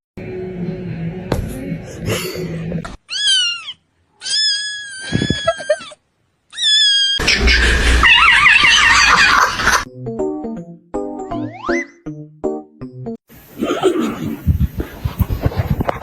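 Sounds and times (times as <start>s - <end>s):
cat meowing: 3.1s - 5.9s, 6.5s - 7.2s, 7.9s - 9.3s.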